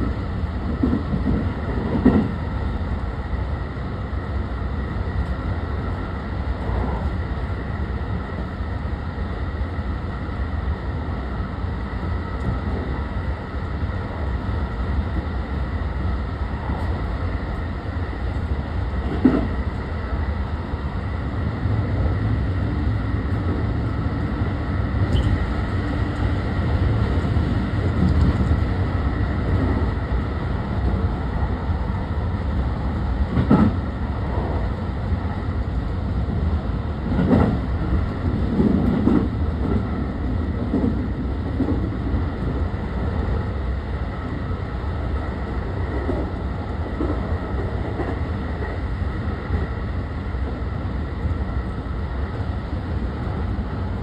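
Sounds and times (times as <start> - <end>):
train wheels rumbling on rail: 0.0 - 54.0
heavy knocks of train wheels: 0.7 - 2.4, 33.3 - 33.8, 37.0 - 42.2.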